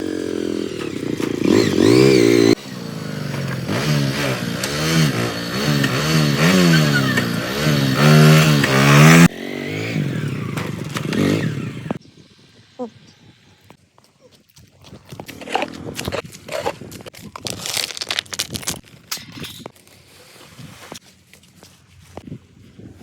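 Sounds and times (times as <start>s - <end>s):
engine revving: 0.0s - 12.0s.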